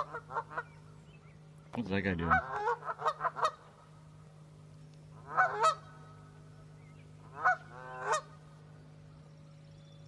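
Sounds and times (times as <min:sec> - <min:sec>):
geese honking: 0:00.0 - 0:00.9, 0:02.2 - 0:04.0, 0:05.1 - 0:08.7.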